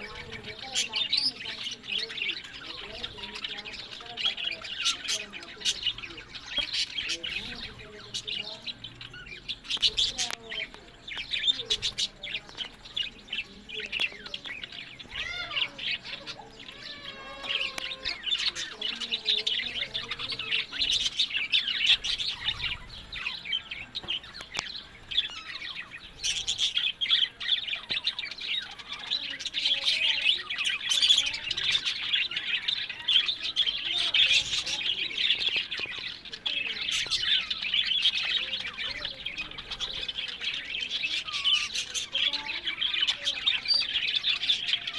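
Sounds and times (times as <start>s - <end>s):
budgerigars chattering: 0.0s - 44.9s.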